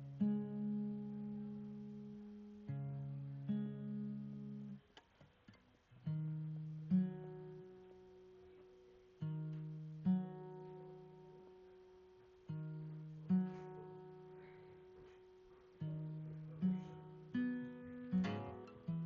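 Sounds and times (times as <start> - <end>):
acoustic guitar slow chords: 0.0 - 19.0.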